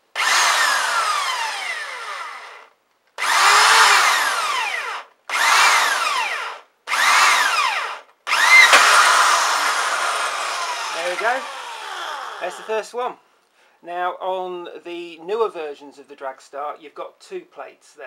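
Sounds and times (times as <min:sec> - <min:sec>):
electric drill boring through metal: 0:00.1 - 0:12.7.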